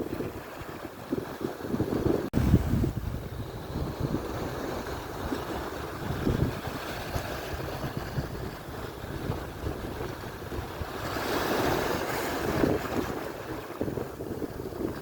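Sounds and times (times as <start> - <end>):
surf washing on shore: 0.0 - 15.0
wind buffeting microphone: 0.0 - 15.0.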